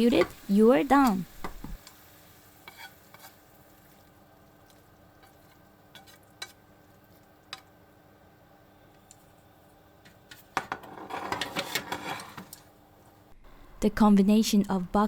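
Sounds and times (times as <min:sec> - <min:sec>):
stir-fry sizzling in pan: 0:00.0 - 0:13.3.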